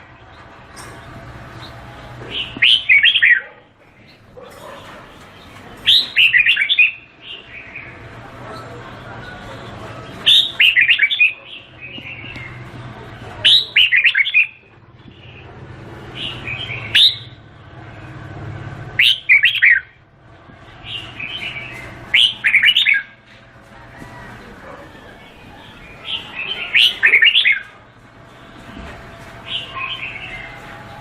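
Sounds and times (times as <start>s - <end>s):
soft chattering bird calls: 0.0s - 18.3s, 18.9s - 20.0s, 20.6s - 31.0s
bird warbling phrases: 25.7s - 27.7s.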